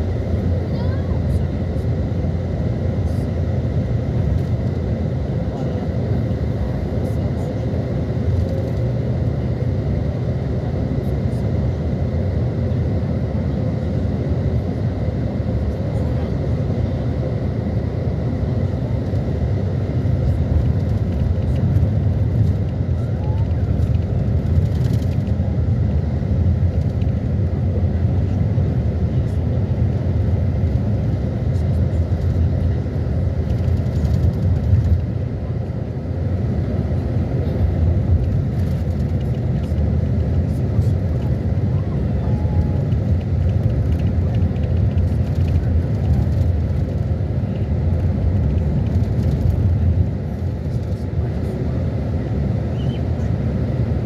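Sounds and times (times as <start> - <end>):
steady low rumbling: 14.0 - 54.0.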